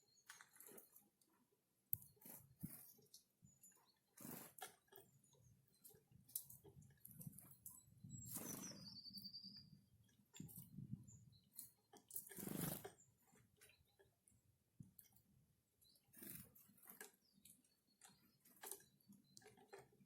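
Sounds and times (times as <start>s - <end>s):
birds pecking and rustling: 0.0s - 20.0s
wings fluttering: 4.2s - 5.0s, 5.8s - 9.0s, 11.6s - 13.0s, 16.1s - 17.2s.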